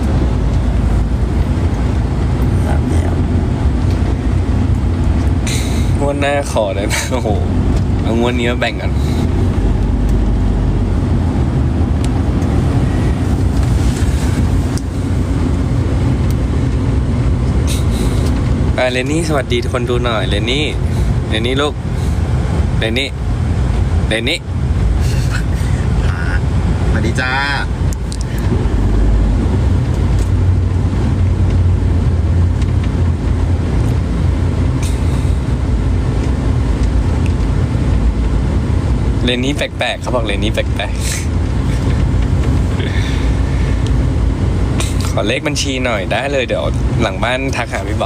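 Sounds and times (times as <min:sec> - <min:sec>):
wind buffeting microphone: 0:00.0 - 0:06.3, 0:07.1 - 0:19.8, 0:20.5 - 0:39.2
low rumble of vehicle: 0:00.0 - 0:48.0.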